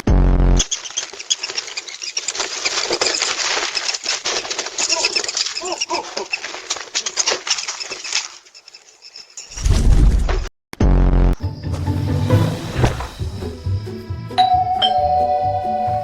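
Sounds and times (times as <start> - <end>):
birds calling: 0.6 - 9.5
bird wing-beats fluttering: 0.6 - 9.9.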